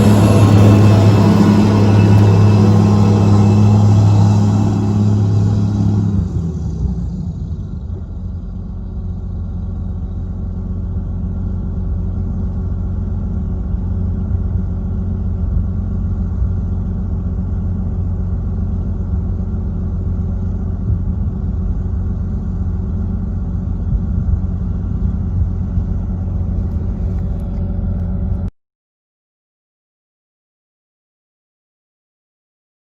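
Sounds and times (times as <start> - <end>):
tractor diesel engine rumbling: 0.0 - 28.5.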